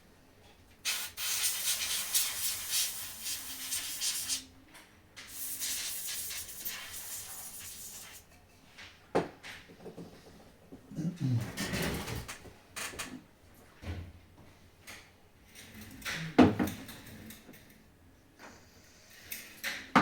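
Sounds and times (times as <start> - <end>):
scratchy hissing rubbing: 0.9 - 4.4, 5.3 - 8.2.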